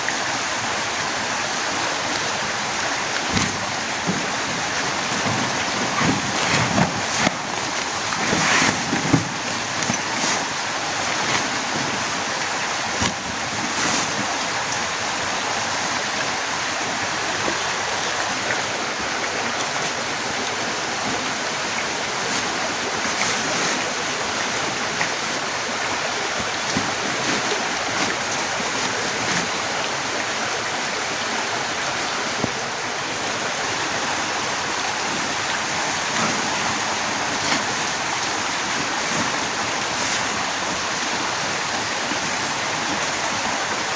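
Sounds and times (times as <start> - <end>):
heavy rain pouring: 0.0 - 43.9
raindrops tapping: 1.6 - 15.0, 17.4 - 43.9.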